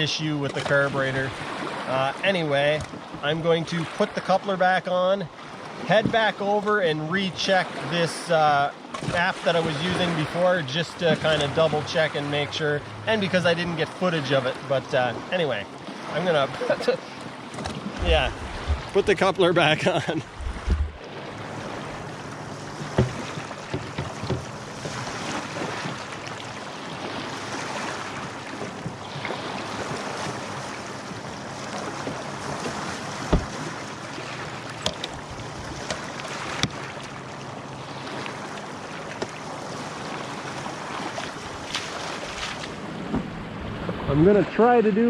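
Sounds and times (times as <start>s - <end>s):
water lapping: 0.0s - 45.0s
wind buffeting microphone: 17.5s - 26.1s
sharp knocks: 20.4s - 21.0s, 22.8s - 25.0s, 32.0s - 33.6s.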